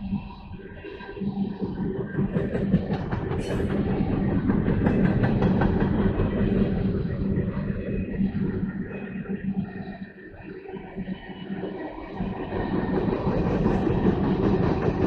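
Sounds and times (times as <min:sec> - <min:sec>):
train rumbling past: 0:01.8 - 0:09.6, 0:12.0 - 0:15.0.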